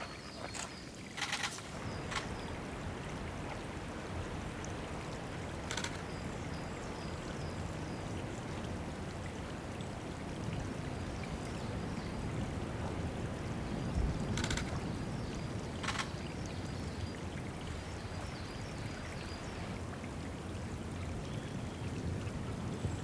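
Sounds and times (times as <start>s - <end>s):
water trickling: 0.0s - 23.0s
rapid burst of clicks: 0.5s - 2.5s, 5.6s - 6.1s, 14.4s - 14.8s, 15.8s - 16.2s.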